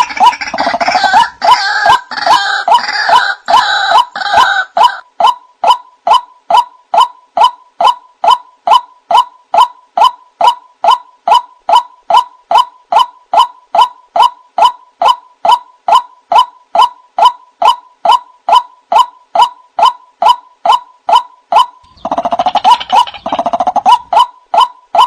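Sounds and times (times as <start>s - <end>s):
waterhen calling: 0.0s - 17.0s, 17.6s - 25.0s.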